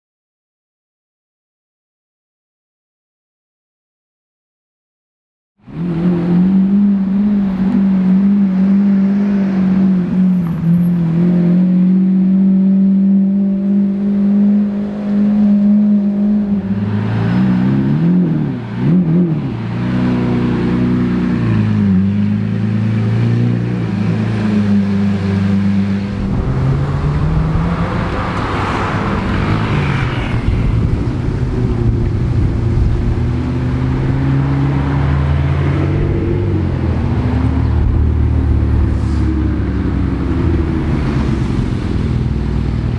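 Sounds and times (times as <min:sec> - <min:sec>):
car accelerating: 0:05.6 - 0:42.9
engine throttle blips: 0:21.3 - 0:42.9
car engine running: 0:25.6 - 0:42.9.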